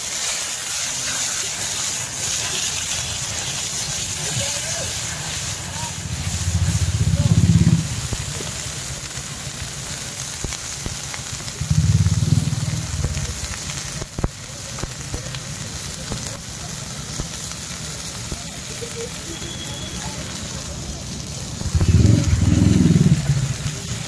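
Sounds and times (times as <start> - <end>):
gas flame rushing: 0.0 - 15.3, 17.0 - 24.0
food sizzling in a wok: 0.0 - 24.0.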